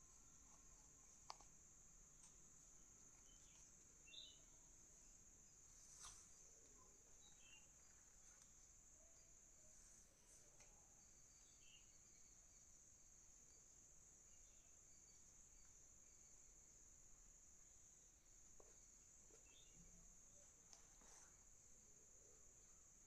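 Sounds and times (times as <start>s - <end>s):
faint high-pitched hiss: 0.0s - 23.0s
faint ticks: 0.4s - 1.6s.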